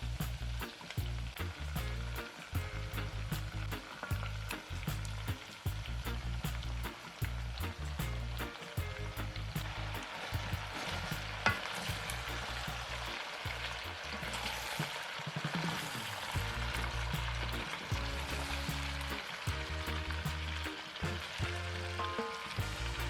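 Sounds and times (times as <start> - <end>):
music with bass line: 0.0 - 14.5, 16.4 - 23.0
food sizzling in a pan: 0.0 - 23.0.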